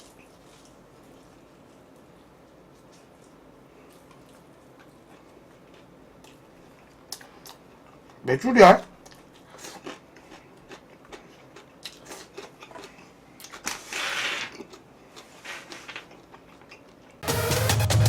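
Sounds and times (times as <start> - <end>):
electronic music with heavy beat: 17.2 - 18.0.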